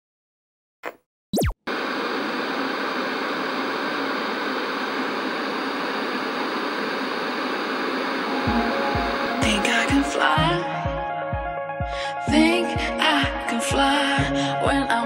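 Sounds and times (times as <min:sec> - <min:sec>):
loud hiss of noise: 0:01.7 - 0:10.4.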